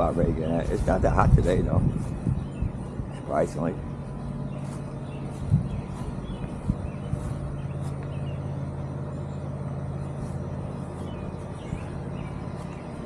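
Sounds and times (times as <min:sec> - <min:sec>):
lawn mower engine humming: 0:00.0 - 0:13.0.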